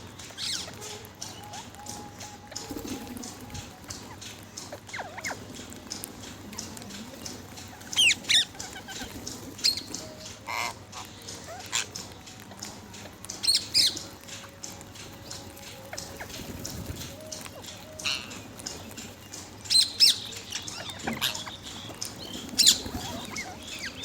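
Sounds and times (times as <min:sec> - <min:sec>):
parrot squawking: 0:00.4 - 0:03.0, 0:03.8 - 0:12.0, 0:19.7 - 0:24.0.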